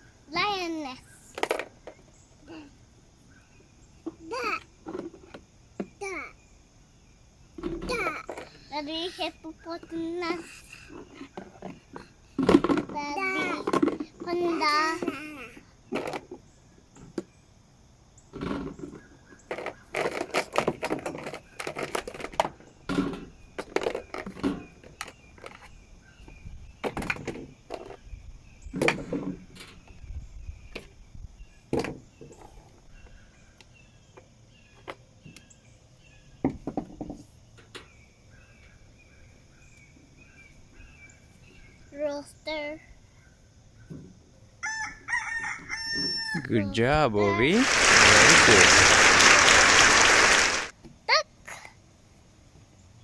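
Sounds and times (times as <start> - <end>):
toy figures knocking and clattering: 12.4 - 14.1, 23.6 - 25.7
soft voice sounds: 46.4 - 50.7.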